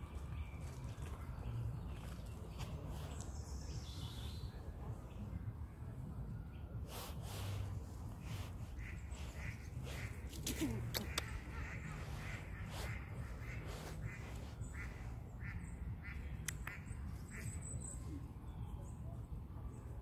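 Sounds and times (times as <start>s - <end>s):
steady low rumble: 0.0s - 20.0s
bird quack-like calls: 8.8s - 17.5s.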